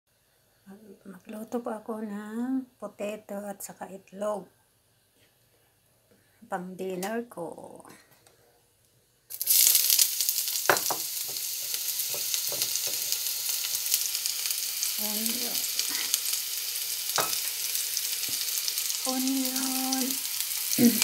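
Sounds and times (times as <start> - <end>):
onion sizzling in hot oil: 9.3 - 21.0.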